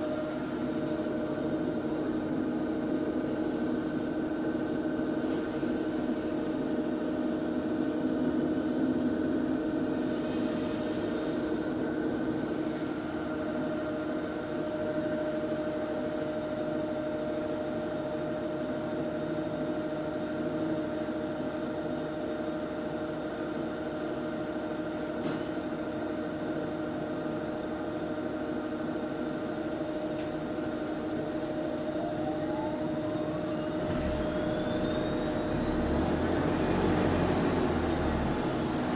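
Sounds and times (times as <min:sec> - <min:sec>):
low engine rumble: 0:31.2 - 0:38.9.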